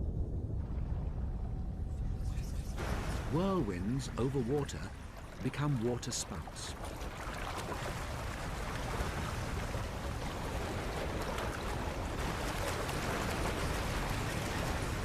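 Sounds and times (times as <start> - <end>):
churning water: 2.8 - 15.0.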